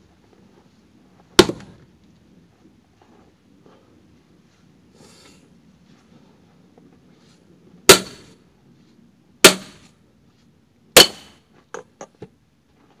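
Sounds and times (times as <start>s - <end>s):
axe striking firewood: 1.4s - 1.8s, 7.9s - 8.3s, 9.4s - 9.9s, 11.0s - 11.4s.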